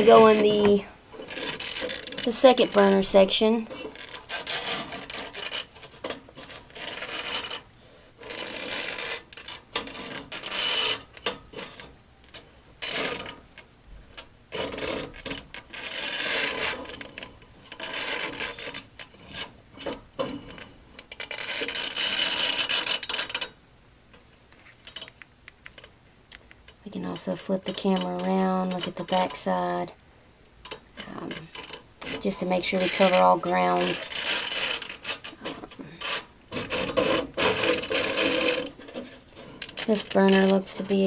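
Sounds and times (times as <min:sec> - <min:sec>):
camera probe scraping metal: 0:00.0 - 0:03.0, 0:03.7 - 0:11.9, 0:14.6 - 0:20.0, 0:20.6 - 0:23.5, 0:31.3 - 0:41.0.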